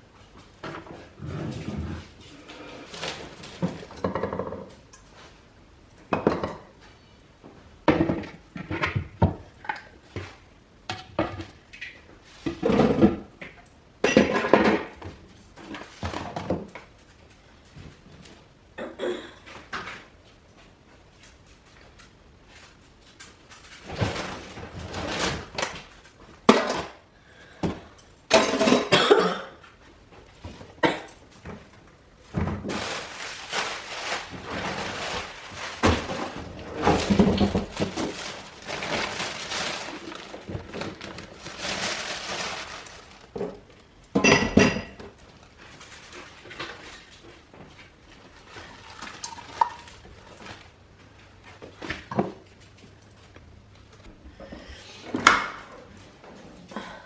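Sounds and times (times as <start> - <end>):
household items clattering: 27.6 - 29.8, 30.4 - 47.4
rustling scrubbing noise: 32.7 - 43.3.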